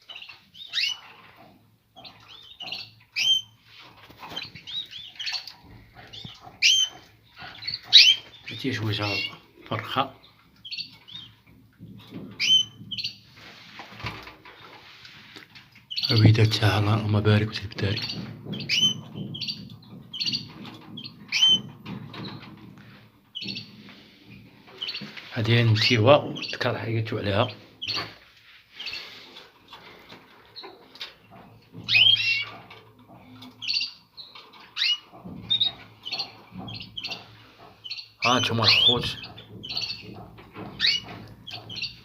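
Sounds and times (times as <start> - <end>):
canaries chirping: 0.0 - 42.0
low irregular rustling: 3.5 - 42.0.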